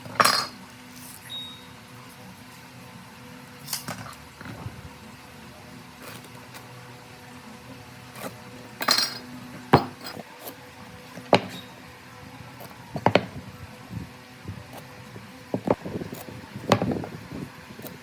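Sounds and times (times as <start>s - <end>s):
metallic clinks and knocks: 8.2s - 10.3s.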